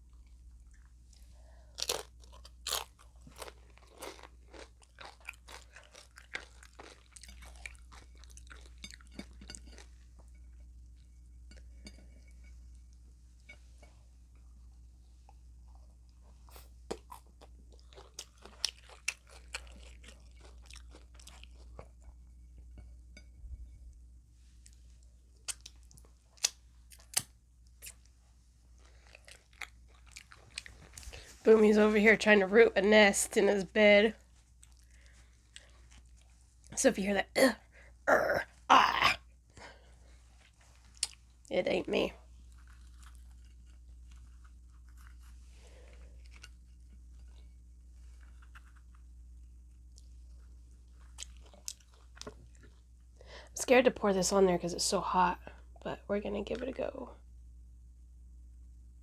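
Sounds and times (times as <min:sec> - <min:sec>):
crunchy taco shell chewing: 0:00.7 - 0:10.0, 0:16.5 - 0:22.0, 0:25.4 - 0:28.1, 0:42.2 - 0:53.0.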